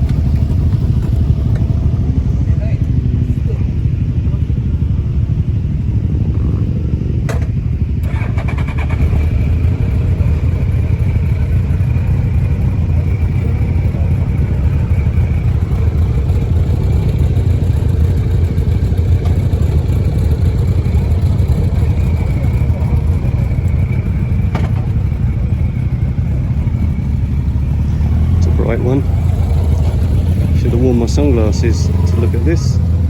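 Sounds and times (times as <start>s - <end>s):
motorcycle engines running: 0.0s - 33.0s.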